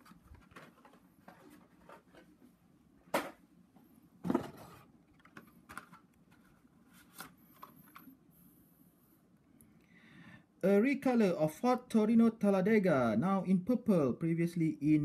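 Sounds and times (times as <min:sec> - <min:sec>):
packaged toy cars clicking and rustling: 0:00.0 - 0:02.3.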